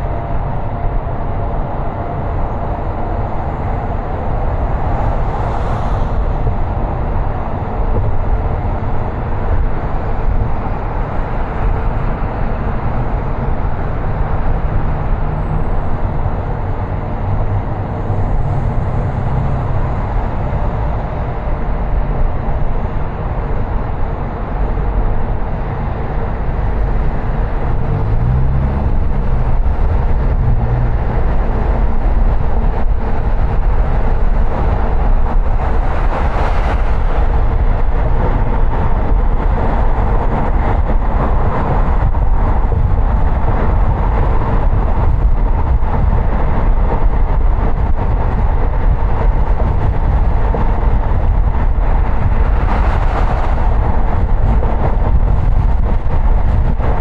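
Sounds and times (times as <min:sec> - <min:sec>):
car road and tyre noise: 0:00.0 - 0:57.0
rush of air: 0:49.3 - 0:57.0.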